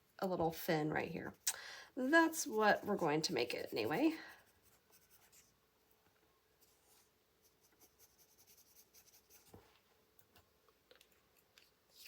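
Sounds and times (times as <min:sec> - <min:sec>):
pencil scratching on paper: 0:02.0 - 0:05.6, 0:06.6 - 0:09.6.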